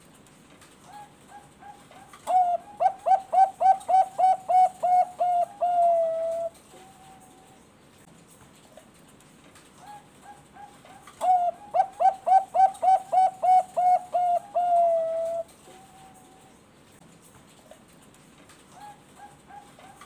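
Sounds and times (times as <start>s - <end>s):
dove cooing: 0.9s - 7.6s, 9.8s - 16.6s, 18.7s - 20.0s.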